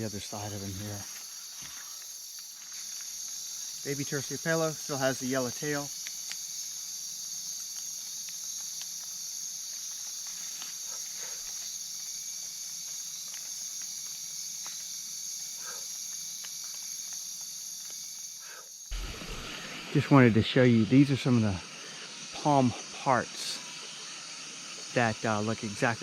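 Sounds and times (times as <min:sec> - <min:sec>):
insects trilling: 0:00.0 - 0:26.0
faint ticks: 0:07.4 - 0:18.9.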